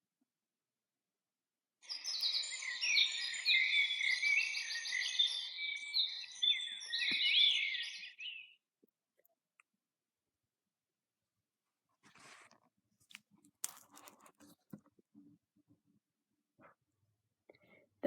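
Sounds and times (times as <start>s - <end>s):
songbirds singing: 1.8s - 8.6s.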